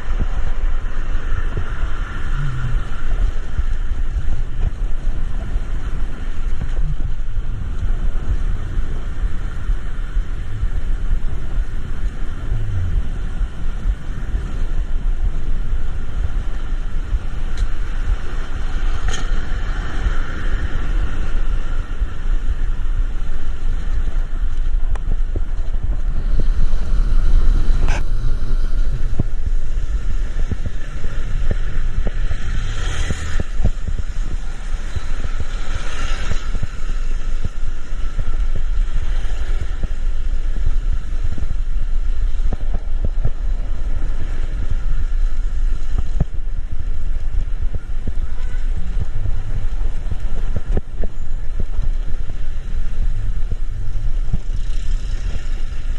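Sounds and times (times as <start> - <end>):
road traffic rumble in rain: 0.0 - 55.9
vehicle passing with hiss: 26.1 - 37.4.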